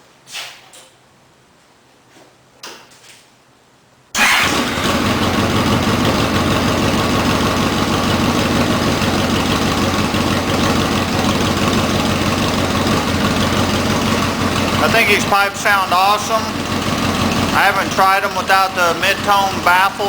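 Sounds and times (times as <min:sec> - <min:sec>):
motorcycle engine starting and idling: 0:04.2 - 0:20.0.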